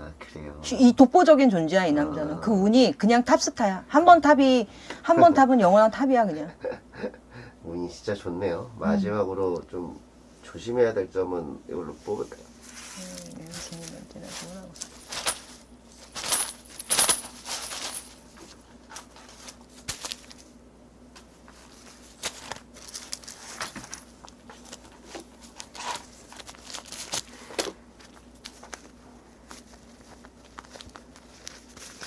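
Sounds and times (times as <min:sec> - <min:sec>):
grains and beans rattling: 0:12.7 - 0:18.4, 0:22.1 - 0:24.2.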